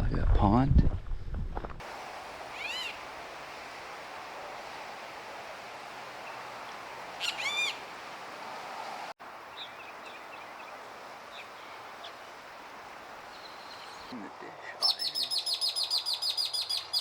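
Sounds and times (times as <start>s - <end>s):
background ambience: 1.8s - 16.4s
bird calling high notes: 2.4s - 3.4s, 6.2s - 7.9s, 13.3s - 17.0s.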